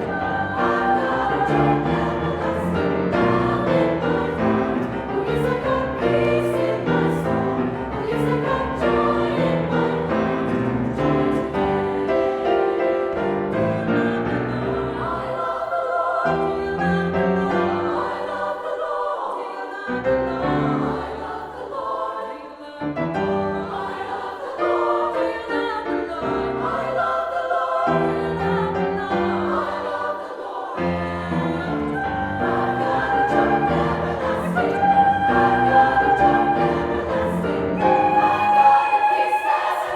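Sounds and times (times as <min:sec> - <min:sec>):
faint piano: 0:00.0 - 0:18.5, 0:22.6 - 0:39.9
mixed choir singing: 0:00.0 - 0:39.9.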